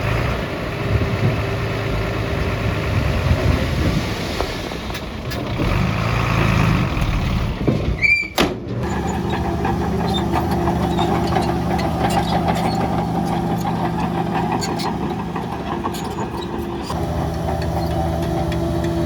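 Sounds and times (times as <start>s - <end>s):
diesel construction machinery running: 0.0s - 19.0s.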